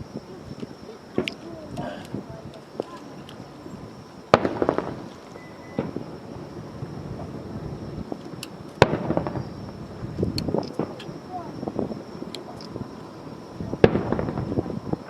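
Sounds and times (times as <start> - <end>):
fireworks bursting: 0.0 - 15.0
crackling pops: 0.5 - 3.5, 4.3 - 6.1, 8.0 - 11.2, 13.8 - 14.7.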